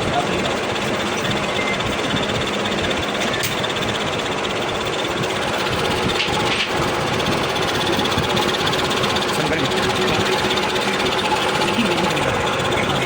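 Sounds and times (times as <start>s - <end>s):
workshop machinery running: 0.0s - 13.0s.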